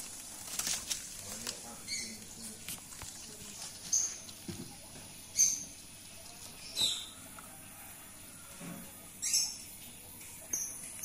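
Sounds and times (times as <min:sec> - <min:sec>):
small bird chirping: 0:00.0 - 0:02.6, 0:03.3 - 0:07.2, 0:09.2 - 0:11.0.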